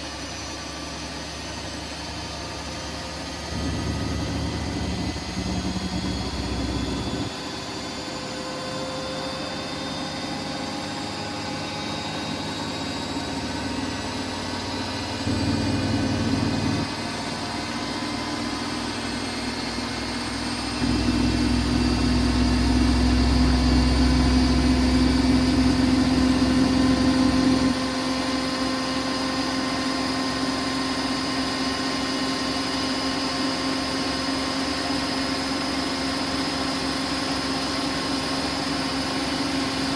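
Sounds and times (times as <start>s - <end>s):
washing machine motor hum: 3.4s - 7.4s, 14.7s - 17.2s, 20.8s - 27.8s.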